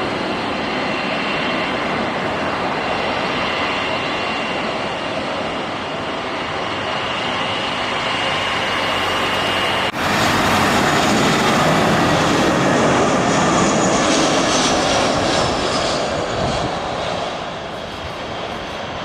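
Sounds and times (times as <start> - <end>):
jet engines passing: 0.0 - 19.0.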